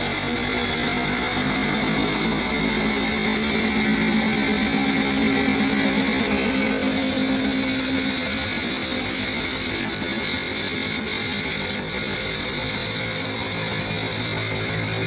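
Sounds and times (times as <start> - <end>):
background music: 0.0 - 10.4.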